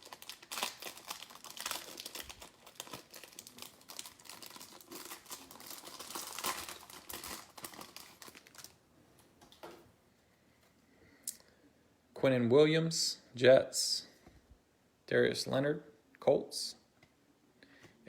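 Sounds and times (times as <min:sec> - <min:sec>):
packaging being torn open: 0:00.0 - 0:08.8.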